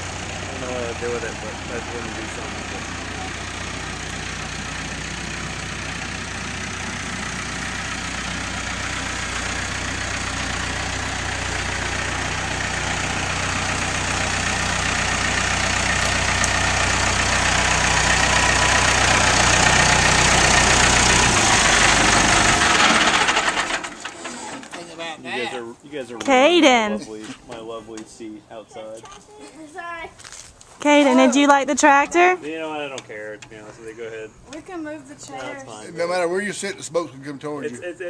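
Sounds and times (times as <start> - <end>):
tractor engine running: 0.0 - 25.1, 26.3 - 26.9, 30.8 - 32.4.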